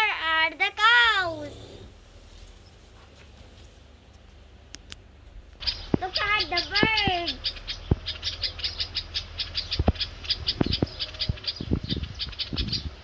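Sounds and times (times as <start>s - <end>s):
high-pitched bird chirping: 5.6s - 13.0s.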